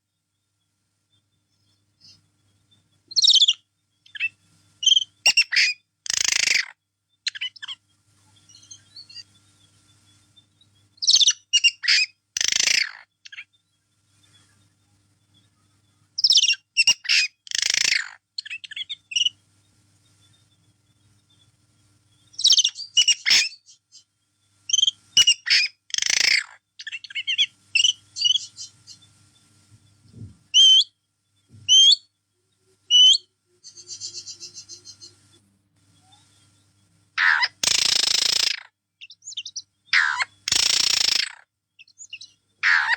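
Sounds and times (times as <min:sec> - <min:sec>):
pet bird chirping and whistling: 0:03.1 - 0:06.7, 0:11.0 - 0:13.4, 0:16.2 - 0:19.3, 0:22.4 - 0:23.7, 0:24.7 - 0:28.7, 0:30.6 - 0:30.9, 0:31.7 - 0:32.1, 0:32.9 - 0:35.0, 0:37.2 - 0:42.9.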